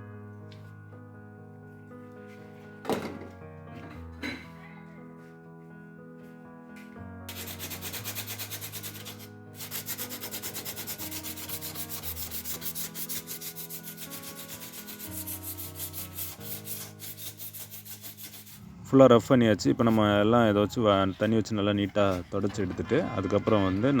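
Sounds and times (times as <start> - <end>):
sandpaper rubbing on metal: 7.3 - 18.6.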